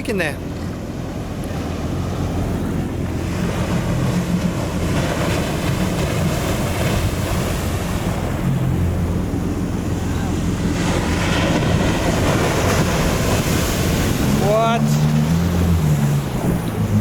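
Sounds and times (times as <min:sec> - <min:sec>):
ocean surf breaking: 0:00.0 - 0:17.0
wind buffeting microphone: 0:01.0 - 0:17.0.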